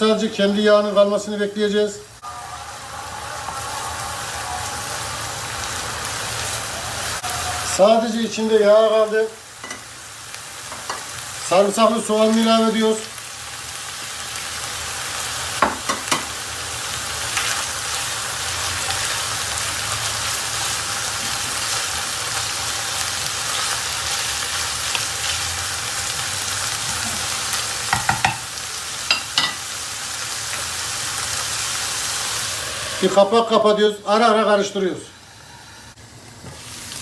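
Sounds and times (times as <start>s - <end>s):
meat and onion sizzling in pan: 0.0s - 37.0s
wooden spoon knocking on pan: 15.6s - 16.3s, 27.9s - 28.5s.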